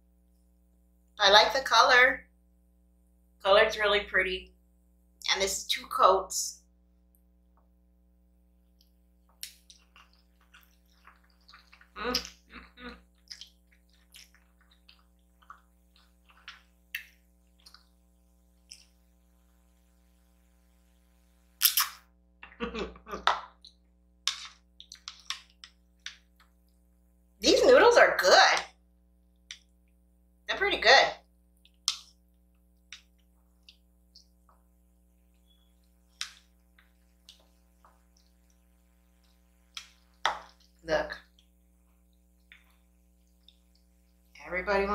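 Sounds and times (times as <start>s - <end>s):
wet chewing and smacking: 8.8s - 19.0s, 35.3s - 44.4s.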